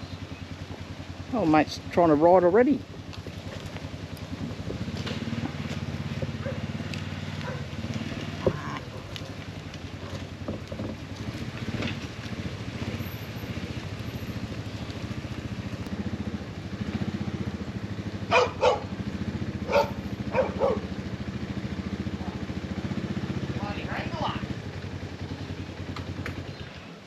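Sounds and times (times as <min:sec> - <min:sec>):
engine idling: 0:00.0 - 0:27.0
dog barking: 0:06.4 - 0:06.7, 0:07.4 - 0:07.7, 0:08.8 - 0:09.2, 0:18.3 - 0:19.0, 0:19.6 - 0:20.9.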